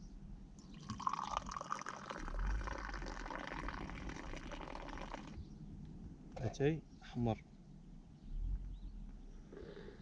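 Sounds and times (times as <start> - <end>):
tea pouring from a teapot: 0.7 - 5.4.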